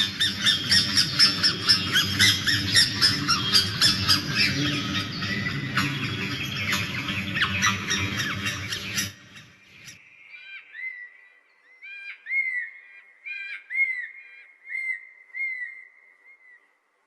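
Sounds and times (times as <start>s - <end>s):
harsh squawk: 0.0s - 10.0s
bird whistling: 0.0s - 11.1s.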